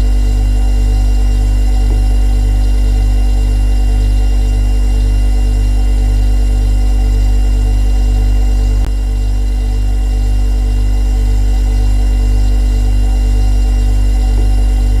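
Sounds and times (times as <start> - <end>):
refrigerator compressor hum: 0.0 - 15.0.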